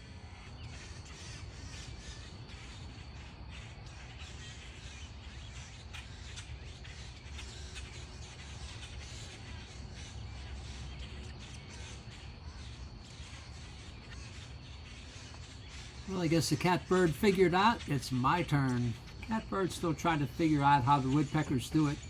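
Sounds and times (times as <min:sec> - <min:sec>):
birds calling: 0:00.0 - 0:22.0.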